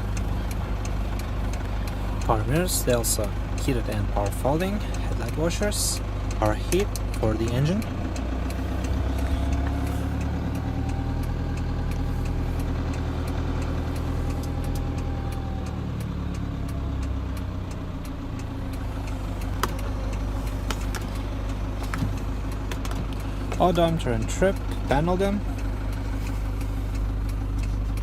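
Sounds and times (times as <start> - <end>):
car engine idling: 0.0 - 28.0
light clicks: 6.3 - 23.7.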